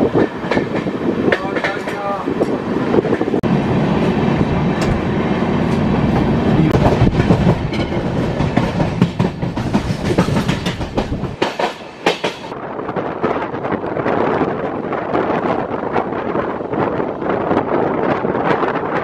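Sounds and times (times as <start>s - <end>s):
wheels clicking over rail joints: 0.0s - 3.3s, 4.7s - 12.6s
train rumble: 0.0s - 19.0s.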